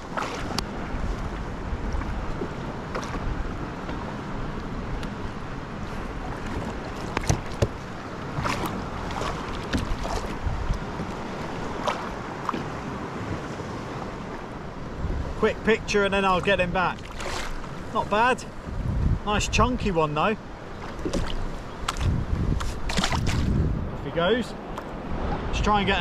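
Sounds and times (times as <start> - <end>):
knocks and clicks on hull: 0.0 - 4.1, 6.3 - 13.4, 20.8 - 23.6
wind on microphone: 0.0 - 15.4, 16.4 - 20.0, 20.8 - 24.4
water lapping against kayak: 0.0 - 26.0.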